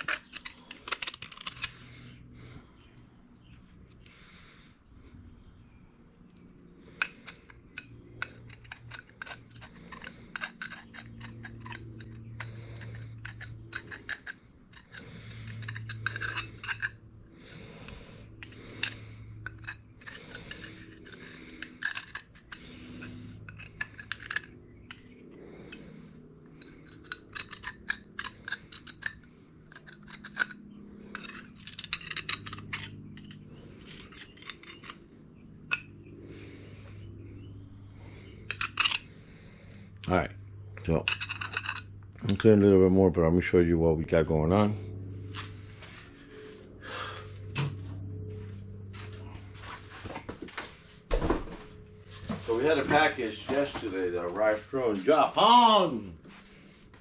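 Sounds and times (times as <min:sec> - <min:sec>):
scraping sealant off metal: 0:06.8 - 0:25.9.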